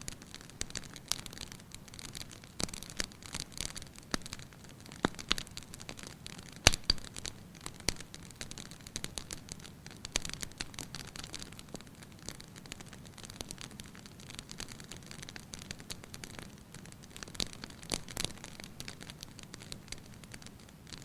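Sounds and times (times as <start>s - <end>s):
fireplace fire crackling: 0.0s - 21.0s.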